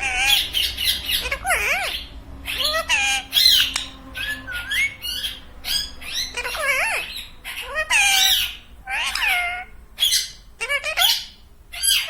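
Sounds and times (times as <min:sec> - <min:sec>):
parrot squawking and calling: 0:00.0 - 0:12.0.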